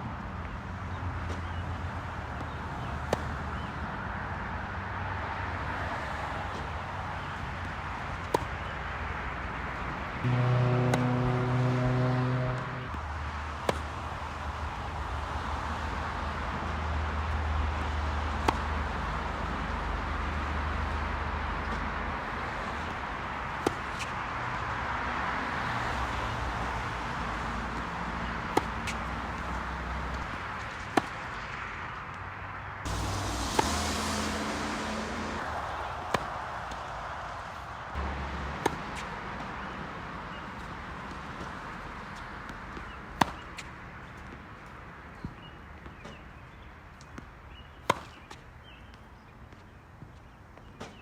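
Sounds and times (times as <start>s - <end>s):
racket hitting tennis ball: 7.6s - 8.7s, 10.2s - 13.0s, 13.6s - 14.0s, 17.8s - 19.6s, 27.8s - 31.5s, 32.9s - 39.9s, 42.8s - 43.7s, 47.8s - 48.4s
low hum: 10.2s - 13.0s, 32.9s - 36.6s.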